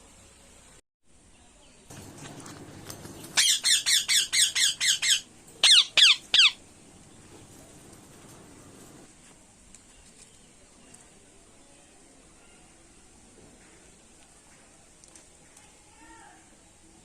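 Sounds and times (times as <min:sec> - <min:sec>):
parakeet squawking: 0:03.2 - 0:06.6.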